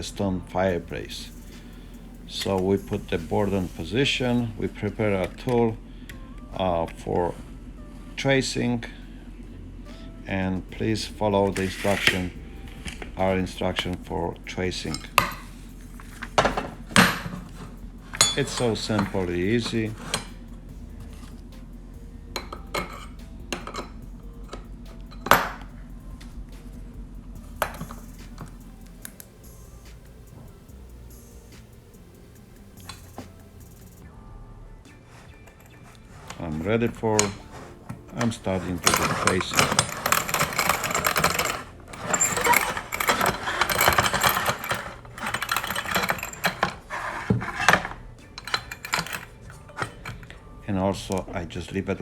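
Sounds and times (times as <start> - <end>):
steady low hum: 0.0 - 52.0
scribing tool scraping on stone: 11.5 - 13.4, 35.1 - 48.0
light metallic clinks: 11.5 - 34.1.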